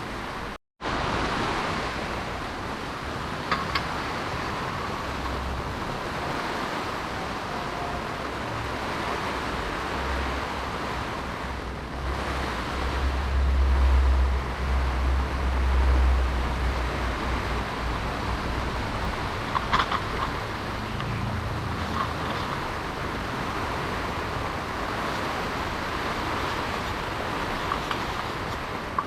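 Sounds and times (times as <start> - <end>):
heavy rain falling: 0.0 - 29.0
deep low rumble: 12.8 - 24.8.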